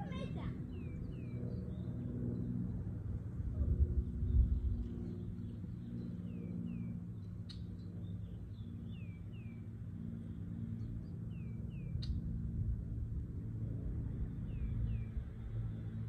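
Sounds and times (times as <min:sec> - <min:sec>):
steady low hum: 0:00.0 - 0:16.0
small bird chirping: 0:00.1 - 0:02.0.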